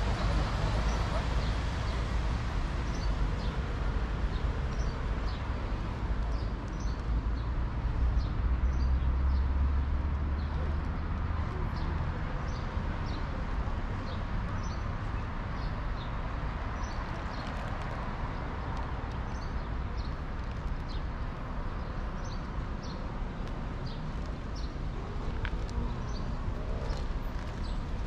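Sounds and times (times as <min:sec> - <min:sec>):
city street rumble: 0:00.0 - 0:28.0
small birds chirping: 0:14.0 - 0:28.0.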